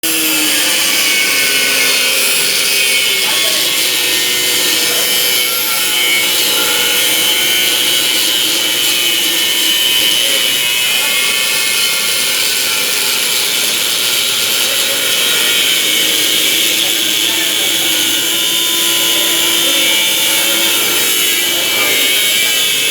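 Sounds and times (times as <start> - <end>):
angle grinder cutting metal: 0.0 - 22.9.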